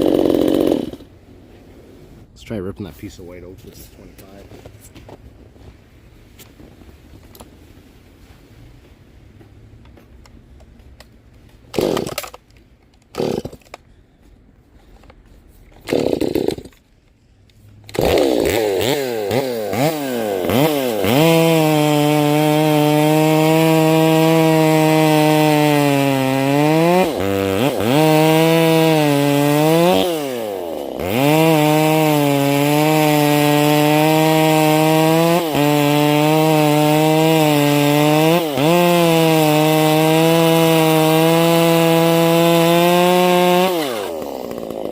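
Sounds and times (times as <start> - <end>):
chainsaw cutting wood: 0.0 - 1.1, 11.7 - 13.8, 15.7 - 16.9, 17.9 - 44.9
chainsaw starter pulls: 0.0 - 1.1, 11.7 - 13.9, 14.9 - 16.9, 17.9 - 44.9.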